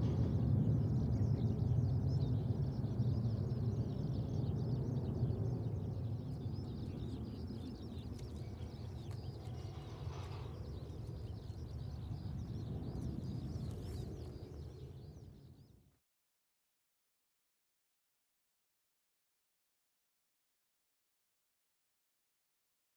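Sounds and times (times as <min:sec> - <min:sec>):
distant jet engine rumble: 0:00.0 - 0:15.9
birds chirping: 0:00.0 - 0:16.0.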